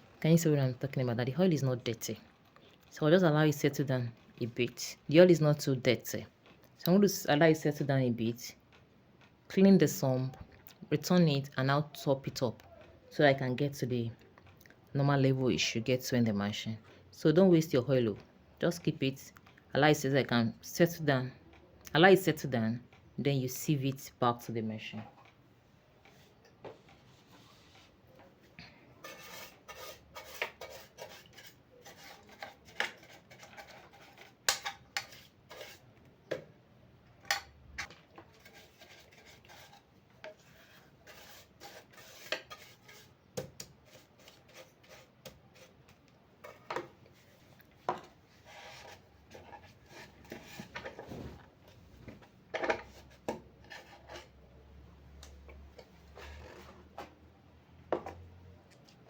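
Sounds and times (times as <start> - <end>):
rubbing and scraping: 29.0 - 35.9, 37.8 - 43.2, 43.8 - 54.4.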